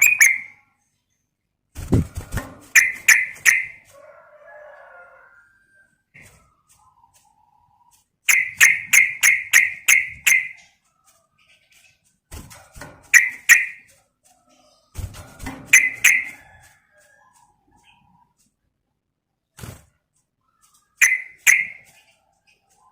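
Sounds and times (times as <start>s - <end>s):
bulbul sharp chirps: 0.0s - 0.6s, 8.3s - 10.6s, 21.0s - 21.8s.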